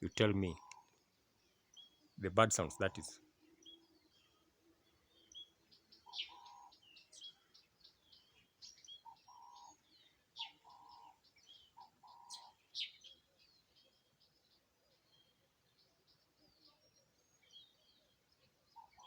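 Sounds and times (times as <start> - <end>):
birds chirping and twittering: 0.0 - 19.0
two-part bird call: 2.4 - 3.2.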